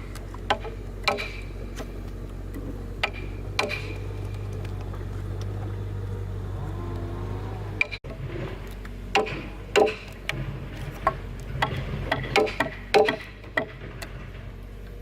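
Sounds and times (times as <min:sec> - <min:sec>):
steady low hum: 0:00.0 - 0:15.0
sharp irregular knocks: 0:00.5 - 0:01.5, 0:02.6 - 0:05.7, 0:09.1 - 0:14.3.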